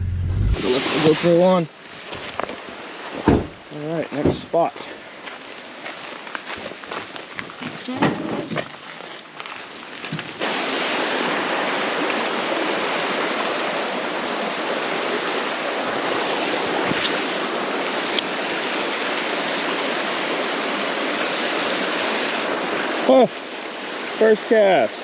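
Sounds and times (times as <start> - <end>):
stream water flowing: 10.4 - 24.2.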